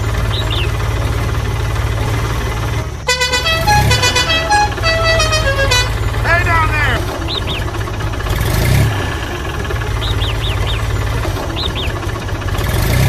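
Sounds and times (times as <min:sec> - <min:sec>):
small engine chugging: 0:00.0 - 0:13.0
melodic horn tune: 0:03.1 - 0:07.0.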